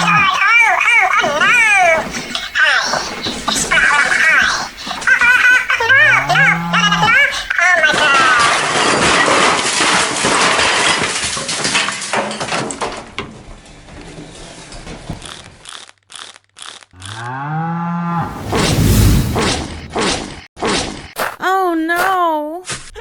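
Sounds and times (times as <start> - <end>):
bull mooing: 5.9 - 7.2, 17.0 - 18.3.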